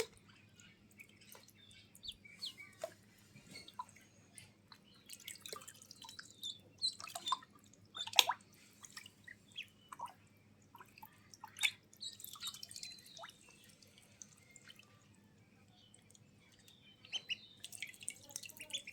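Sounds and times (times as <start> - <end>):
water splashing and dripping: 4.7 - 15.1, 16.0 - 18.9.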